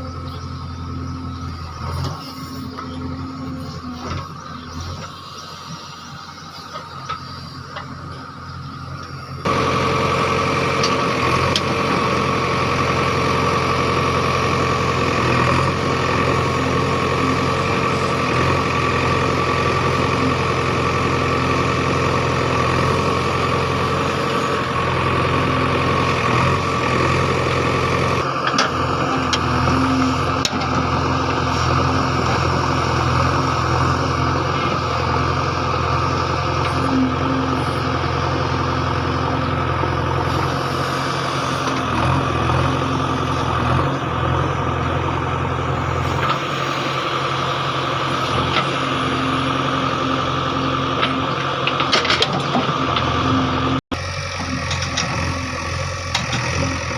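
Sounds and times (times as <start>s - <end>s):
diesel digger engine running: 0.0s - 56.9s.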